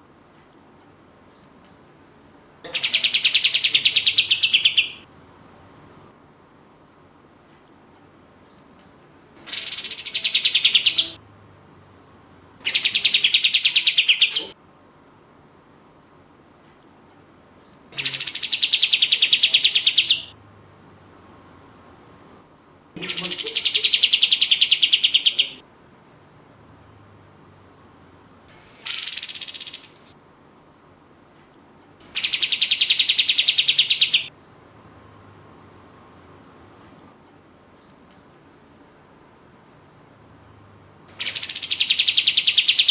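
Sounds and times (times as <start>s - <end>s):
bird rattling trills: 28.8s - 30.1s, 32.1s - 34.3s, 41.2s - 42.9s.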